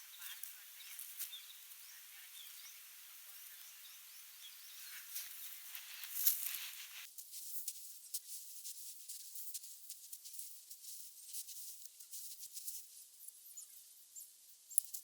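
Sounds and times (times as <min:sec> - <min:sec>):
flowing water hiss: 0:00.0 - 0:07.1
small birds chirping: 0:00.0 - 0:07.1.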